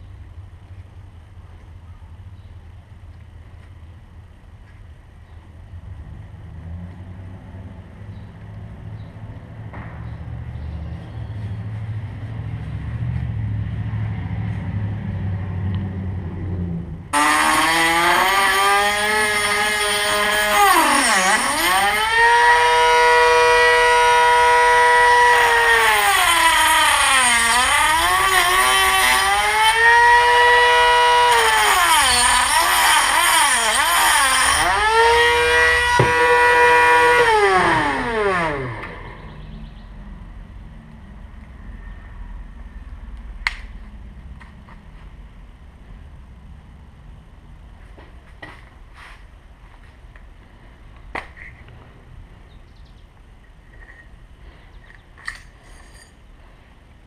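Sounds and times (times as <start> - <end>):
rotary tool cutting metal shaft: 17.2 - 39.0
low hum: 34.6 - 48.2.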